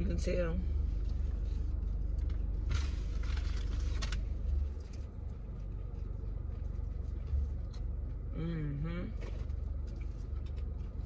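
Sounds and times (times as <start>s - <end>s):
car idling hum: 0.0s - 11.0s
crunchy chewing of fried food: 0.8s - 8.3s, 9.1s - 11.0s
quiet chewing: 4.5s - 8.3s, 9.1s - 11.0s.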